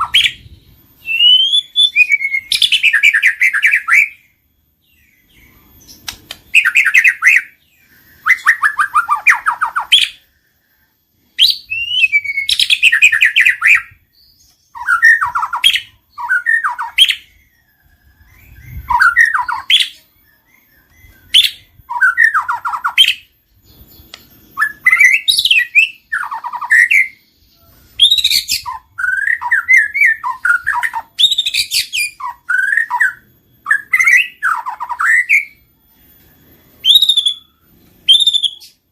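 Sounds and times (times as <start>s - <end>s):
bird singing whistles and trills: 0.0s - 38.9s.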